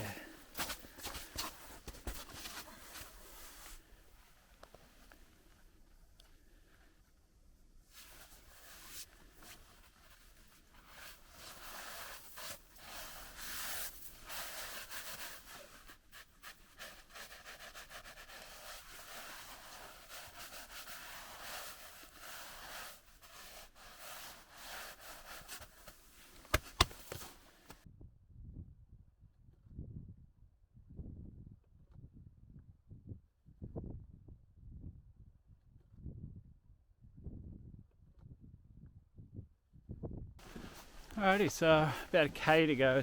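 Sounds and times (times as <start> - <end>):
clothing rubbing microphone: 7.9 - 27.8, 40.4 - 43.0.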